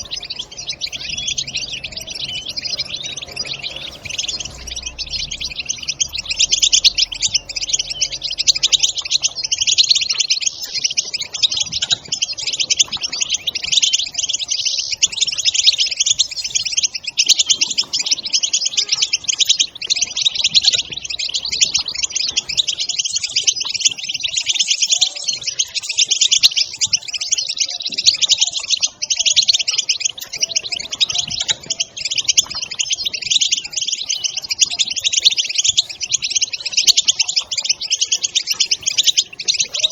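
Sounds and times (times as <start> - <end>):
goldfinches twittering: 0.0 - 39.9.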